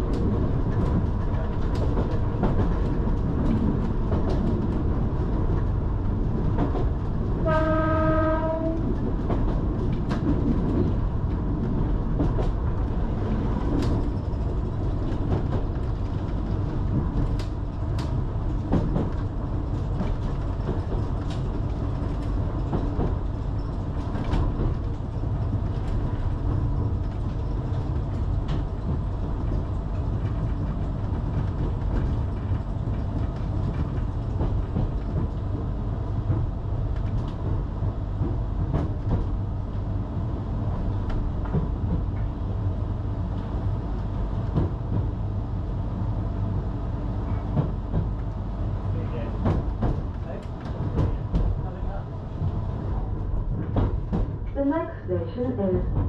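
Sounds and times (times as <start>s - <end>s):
electric train rumbling: 0.0s - 56.0s
train horn: 7.4s - 8.9s.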